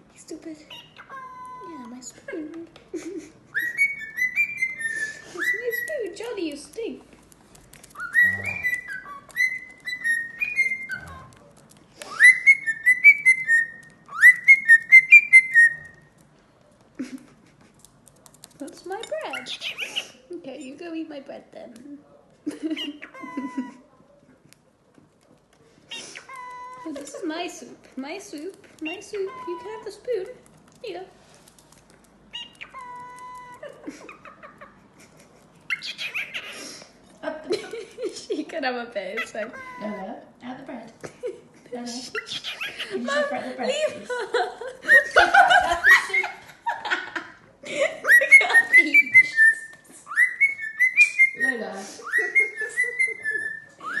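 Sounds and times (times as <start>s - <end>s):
cockatiel whistling: 3.5s - 6.0s, 8.0s - 11.3s, 12.1s - 16.0s, 32.3s - 33.7s, 44.9s - 46.4s, 48.0s - 54.0s.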